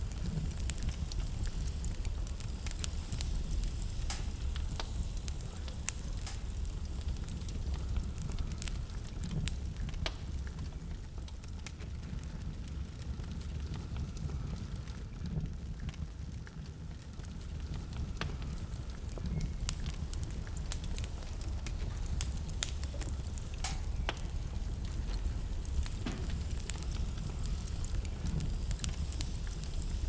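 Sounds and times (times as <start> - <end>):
fire crackling and popping: 0.0 - 30.0
fire rumbling: 0.0 - 30.0.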